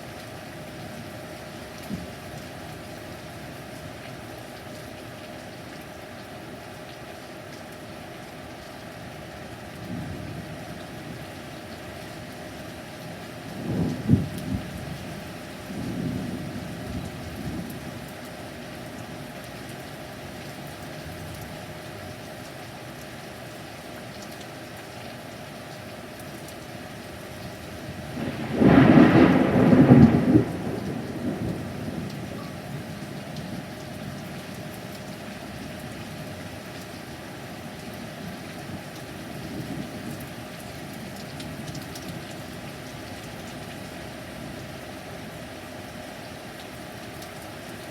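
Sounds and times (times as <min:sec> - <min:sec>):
heavy rain: 0:00.0 - 0:47.9
rolling thunder: 0:28.1 - 0:32.4.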